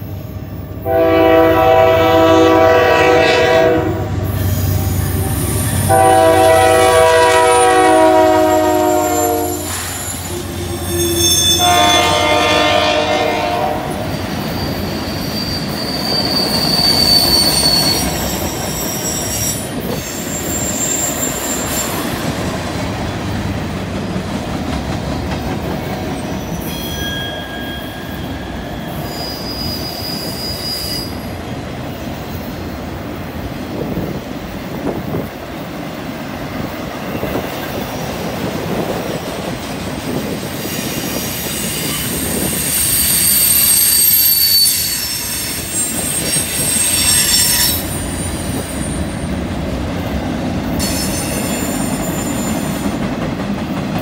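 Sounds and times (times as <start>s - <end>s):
steel wheels rumbling on rail: 0.0s - 54.0s
high-pitched wheel squeal: 7.5s - 12.4s, 14.0s - 22.2s, 26.2s - 31.4s, 40.6s - 49.2s.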